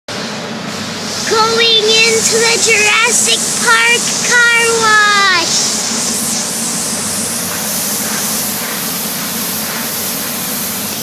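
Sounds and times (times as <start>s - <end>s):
car wash water spray hissing: 0.7s - 11.0s.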